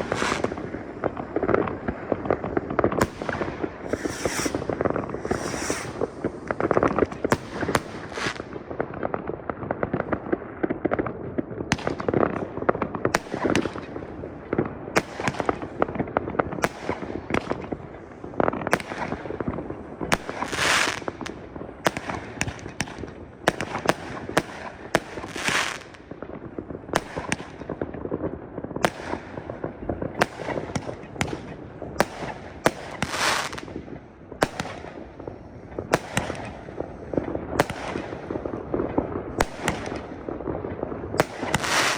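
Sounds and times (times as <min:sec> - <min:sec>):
firecracker crackle: 0:00.0 - 0:41.9
firework bangs: 0:00.0 - 0:41.9.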